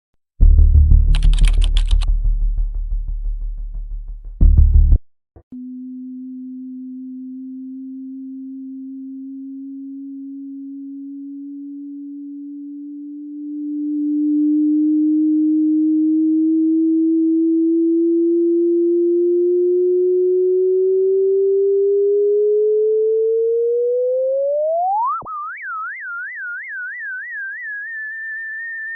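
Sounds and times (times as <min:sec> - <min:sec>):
low rumble: 0:00.4 - 0:05.0
electronic tone rising in pitch: 0:05.6 - 0:28.9.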